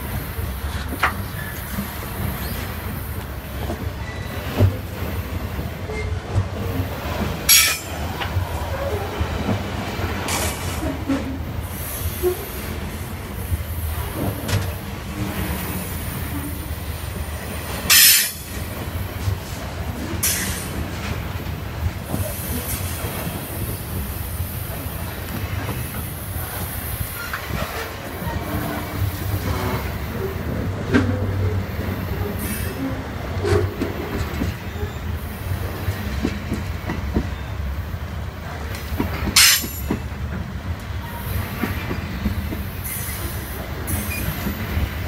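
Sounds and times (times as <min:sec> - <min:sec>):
freight train wheels rumbling: 0:00.0 - 0:45.0.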